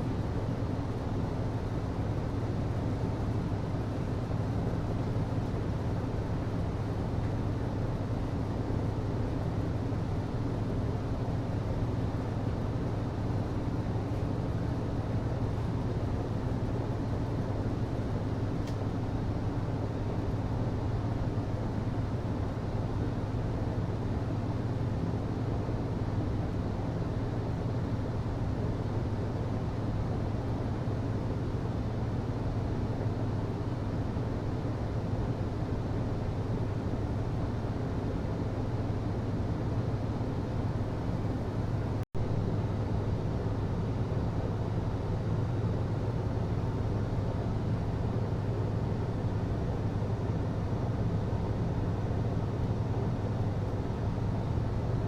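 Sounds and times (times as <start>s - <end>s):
hvac system humming: 0.0s - 55.0s
faint click: 18.6s - 18.8s.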